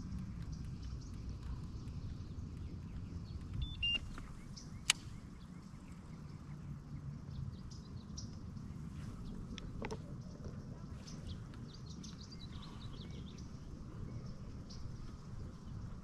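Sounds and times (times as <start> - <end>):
low rumble: 0.0 - 16.0
faint bird chirps: 0.4 - 16.0
sharp click: 3.5 - 5.2.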